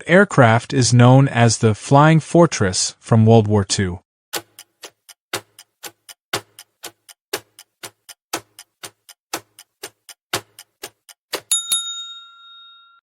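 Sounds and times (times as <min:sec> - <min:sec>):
clock ticking: 0:04.4 - 0:11.6.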